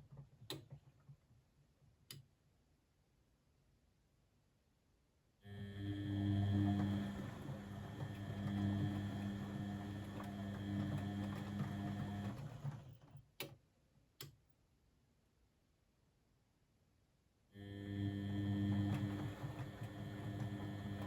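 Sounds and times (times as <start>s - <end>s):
washing machine motor humming: 5.5s - 13.1s, 17.7s - 21.0s.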